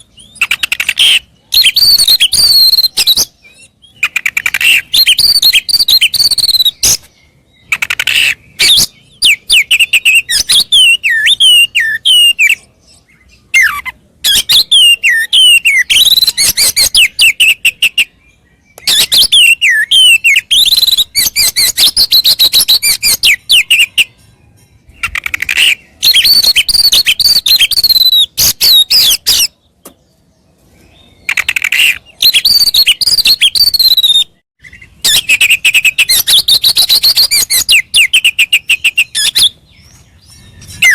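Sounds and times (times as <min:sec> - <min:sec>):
bird singing whistled notes: 0:00.0 - 0:40.9.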